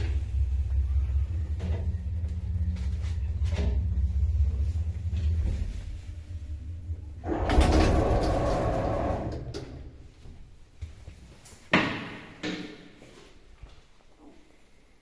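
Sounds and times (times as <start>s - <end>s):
sliding doors rumbling open: 0.0s - 10.7s
elevator travel hum: 0.0s - 11.4s.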